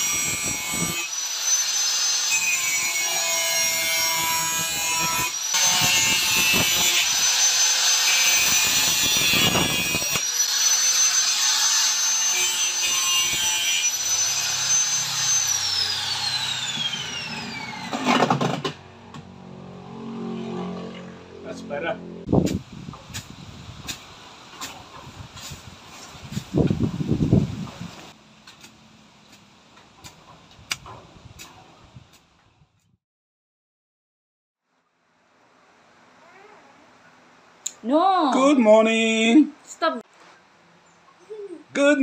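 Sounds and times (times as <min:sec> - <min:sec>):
blade rasping on grinder: 0:00.0 - 0:18.5
electric grinder whining: 0:00.0 - 0:19.2.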